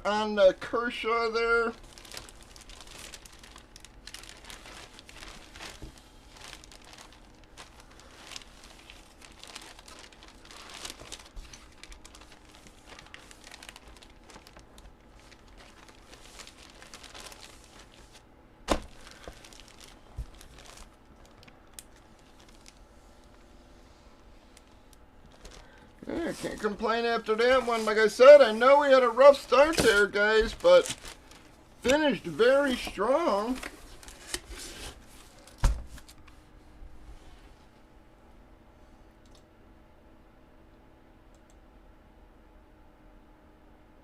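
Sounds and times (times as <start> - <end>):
packaging crinkling and rustling: 1.1 - 23.6, 24.2 - 36.4.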